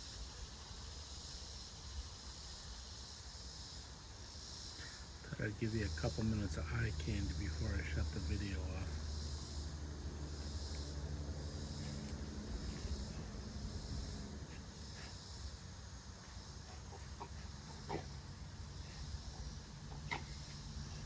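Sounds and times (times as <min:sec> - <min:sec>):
insects chirping: 0:00.0 - 0:21.0
bees buzzing: 0:05.8 - 0:21.0.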